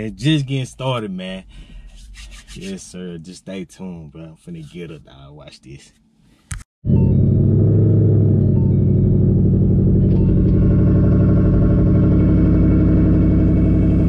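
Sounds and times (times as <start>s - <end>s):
car engine idling: 7.3s - 14.0s.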